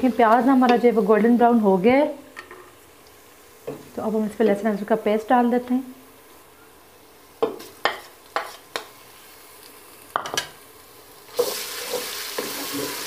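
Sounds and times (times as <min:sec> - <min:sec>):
paste sizzling in hot oil: 0:11.0 - 0:13.0.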